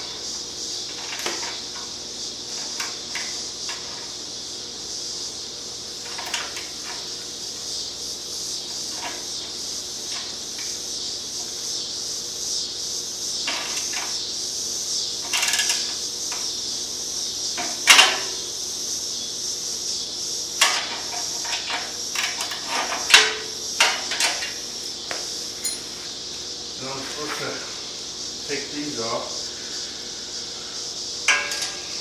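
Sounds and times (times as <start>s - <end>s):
steady hiss: 0.0s - 32.0s
metal tools clinking: 25.6s - 26.0s.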